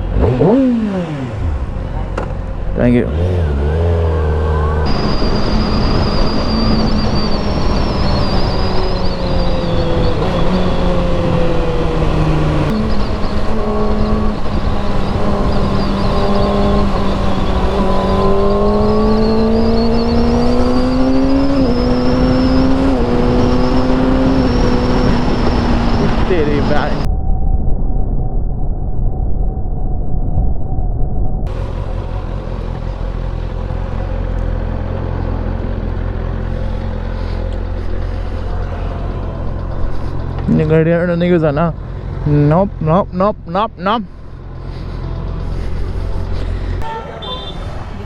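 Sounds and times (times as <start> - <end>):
motorcycle engine revving: 0.0 - 27.1, 31.5 - 48.0.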